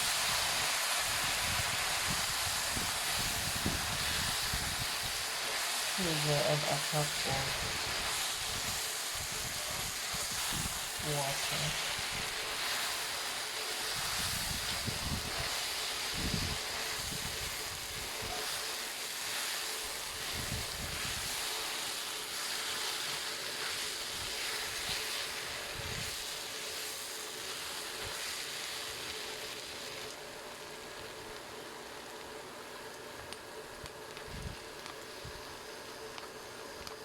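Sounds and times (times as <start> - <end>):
sugar water hissing in pan: 0.0 - 37.0.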